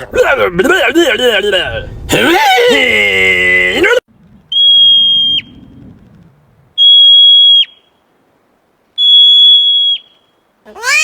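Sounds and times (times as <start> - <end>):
animal whistle-like call: 4.5 - 5.6, 6.8 - 8.0, 9.0 - 11.0.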